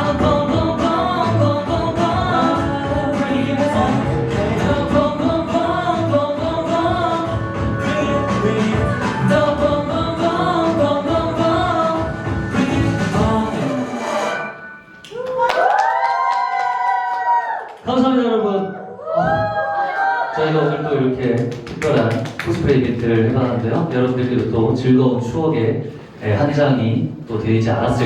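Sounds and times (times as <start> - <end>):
pop song singing: 0.0 - 14.5.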